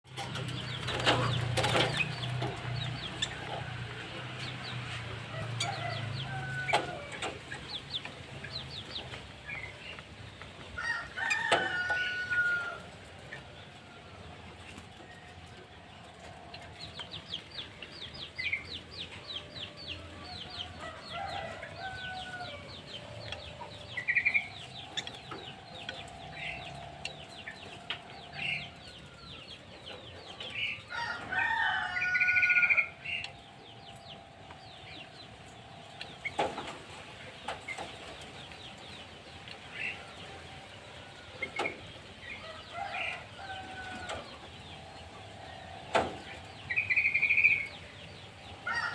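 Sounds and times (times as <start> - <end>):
rooster crowing: 5.3 - 7.2, 10.8 - 12.9, 20.6 - 22.8, 30.9 - 32.9, 48.6 - 48.9.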